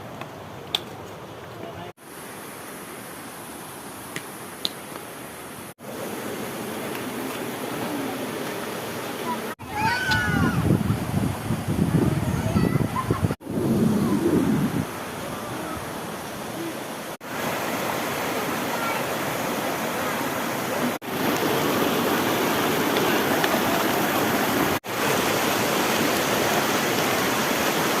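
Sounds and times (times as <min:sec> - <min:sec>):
waterfall rushing: 0:05.4 - 0:11.4, 0:12.0 - 0:28.0.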